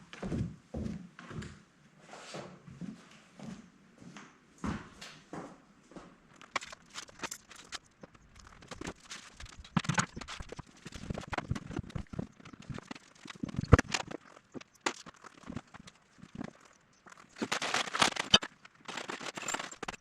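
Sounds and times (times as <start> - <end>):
knocks and clatter of handling: 6.4 - 20.0.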